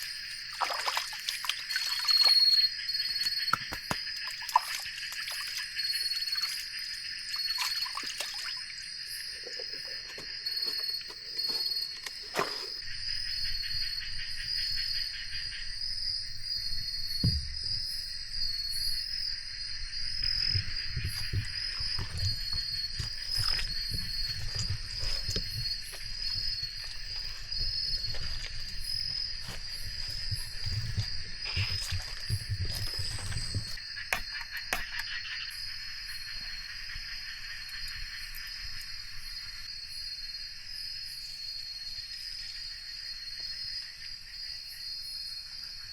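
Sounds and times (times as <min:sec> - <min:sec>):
insects trilling: 0:00.0 - 0:45.9
low thumping and rumbling: 0:19.9 - 0:33.8.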